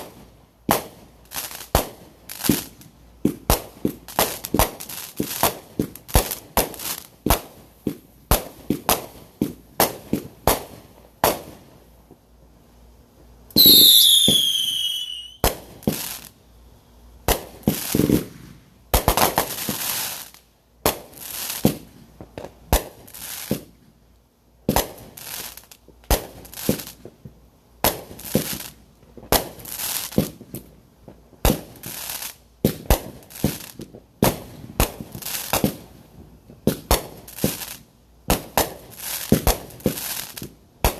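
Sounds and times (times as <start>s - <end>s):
fireworks popping and crackling: 0.0s - 12.3s, 13.5s - 16.5s, 17.2s - 24.0s, 24.6s - 40.9s
piercing falling firework whistle: 13.5s - 15.5s.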